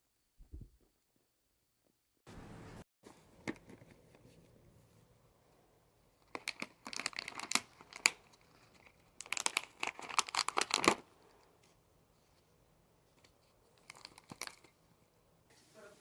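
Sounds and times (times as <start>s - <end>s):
crinkly material tearing: 6.2s - 11.1s, 13.8s - 14.8s.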